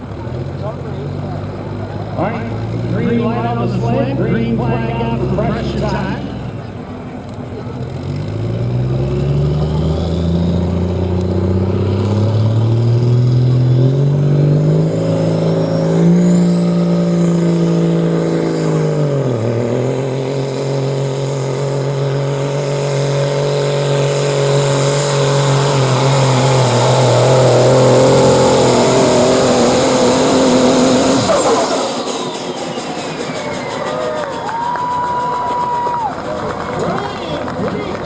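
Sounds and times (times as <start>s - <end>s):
diesel truck engine at full throttle: 0.0s - 38.0s.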